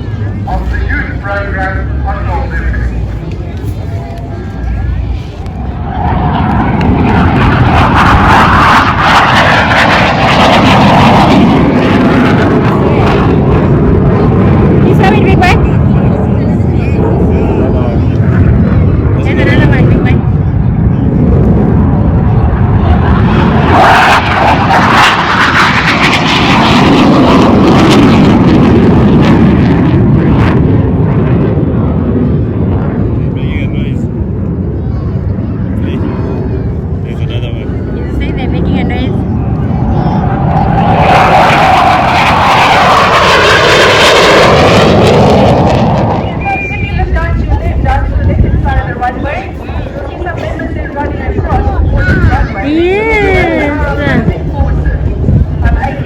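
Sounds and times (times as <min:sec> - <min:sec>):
aircraft engine roar overhead: 0:00.0 - 0:56.0.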